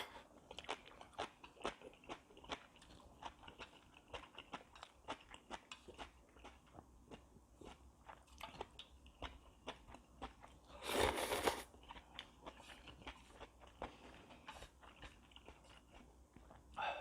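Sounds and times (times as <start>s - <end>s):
wet chewing and lip clicks: 0.4s - 16.8s
loud noodle slurp: 10.8s - 11.7s.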